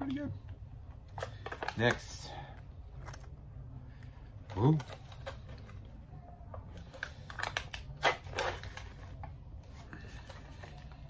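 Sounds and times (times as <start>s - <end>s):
snack packaging crinkling: 1.1s - 2.2s, 6.6s - 11.0s.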